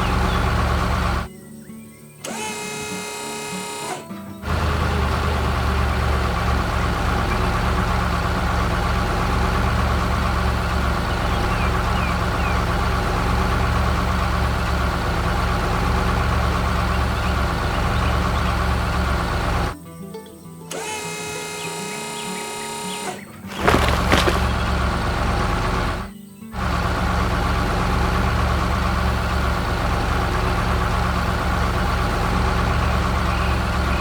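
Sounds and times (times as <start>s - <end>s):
heavy vehicle engine running: 0.0s - 1.3s, 4.4s - 19.8s, 23.5s - 34.0s.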